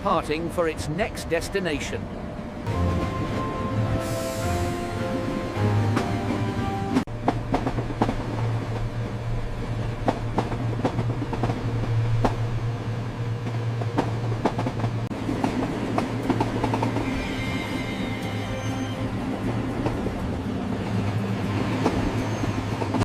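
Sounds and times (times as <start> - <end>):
train rumbling on track: 0.0 - 23.0
wheels clacking on rails: 4.9 - 23.0.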